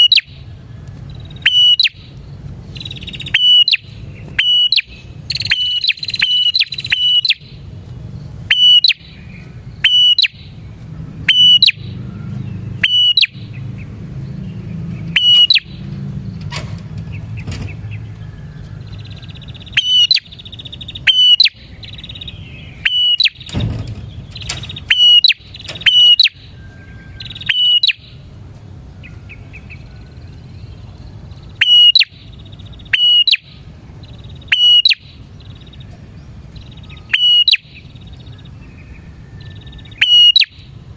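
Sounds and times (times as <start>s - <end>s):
bird calling sharp high notes: 0.0s - 0.5s, 1.1s - 7.7s, 8.4s - 10.6s, 11.2s - 12.0s, 12.8s - 13.6s, 15.0s - 15.9s, 19.1s - 28.4s, 31.4s - 35.8s, 36.6s - 38.4s, 39.2s - 40.8s
bird chattering: 0.0s - 28.4s, 29.0s - 40.8s.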